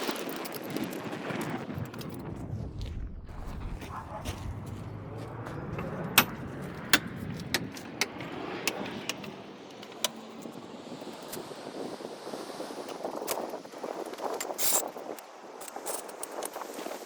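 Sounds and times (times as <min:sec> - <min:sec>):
low background rumble: 0:02.0 - 0:09.7
hand tools clicking and clanking: 0:04.1 - 0:11.4.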